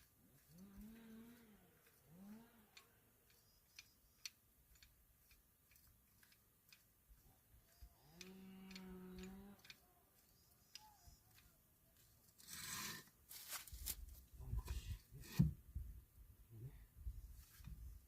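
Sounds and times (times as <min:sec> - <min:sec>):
cow mooing: 0:08.1 - 0:09.6.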